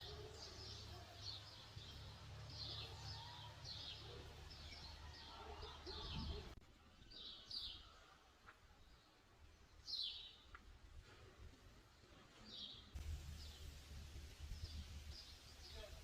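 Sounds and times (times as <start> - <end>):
birds chirping faintly: 11.8 - 16.0.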